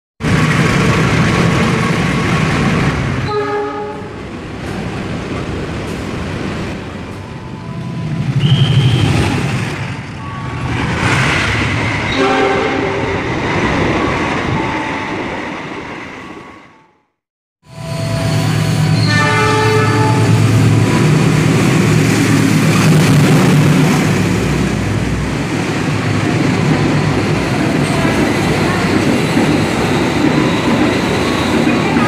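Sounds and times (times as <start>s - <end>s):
diesel locomotive engine rumble: 0.2s - 15.9s, 17.6s - 32.0s
train wheels on rails: 0.2s - 16.6s, 17.8s - 32.0s
multi-tone train horn: 3.2s - 4.2s, 12.1s - 13.1s, 17.6s - 20.7s.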